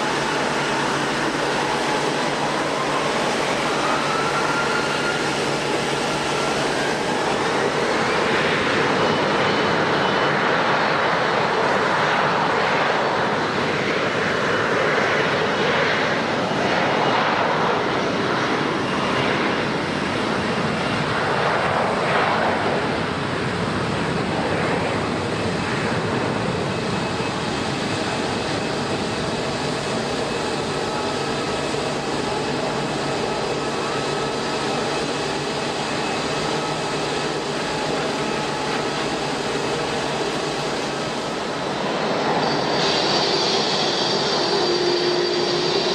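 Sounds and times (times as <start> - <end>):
airliner engines rushing: 0.0 - 45.9.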